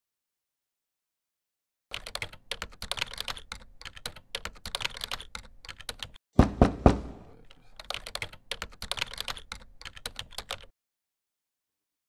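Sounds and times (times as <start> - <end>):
rapid clattering clicks and taps: 1.9 - 10.7.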